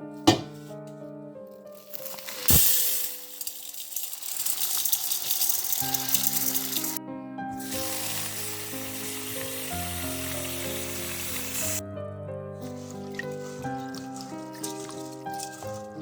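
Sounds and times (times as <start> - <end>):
background music sustained notes: 0.0 - 16.0
food sizzling in a frying pan: 1.8 - 7.0, 7.6 - 11.8, 12.8 - 16.0.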